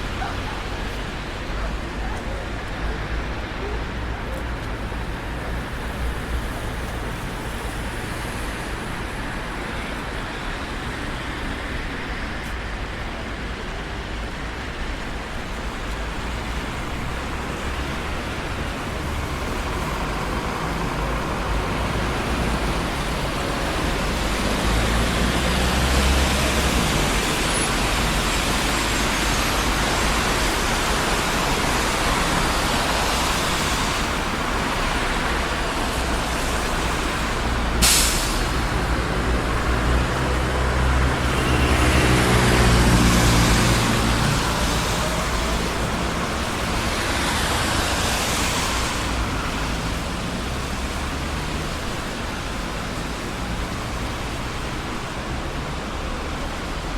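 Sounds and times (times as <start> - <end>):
city road traffic: 0.0 - 56.9
heavy vehicle passing: 16.2 - 56.9.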